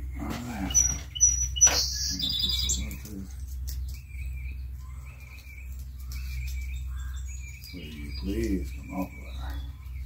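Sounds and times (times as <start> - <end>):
bird trilling call: 0.0 - 3.0, 3.9 - 10.0
birds chirping: 0.0 - 10.0.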